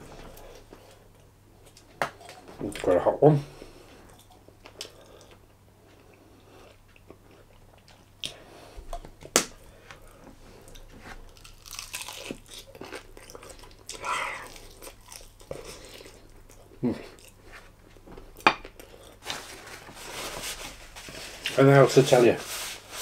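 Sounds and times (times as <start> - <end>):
chewing crispy chicken: 11.3 - 17.6.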